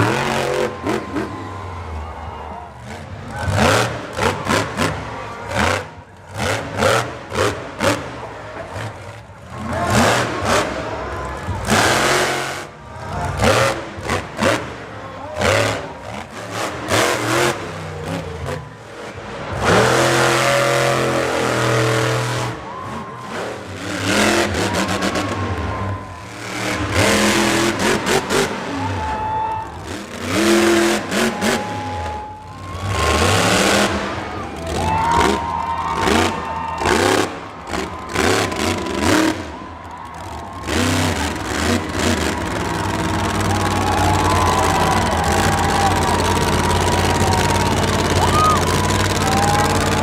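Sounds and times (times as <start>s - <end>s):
truck engine revving: 0.0s - 50.0s.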